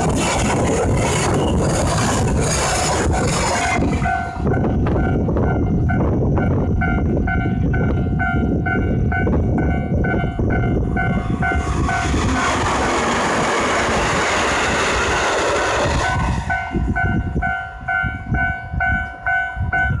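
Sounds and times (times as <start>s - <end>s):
train passing at speed: 0.0s - 20.0s
level-crossing alarm bell dinging: 3.6s - 12.2s, 16.5s - 20.0s.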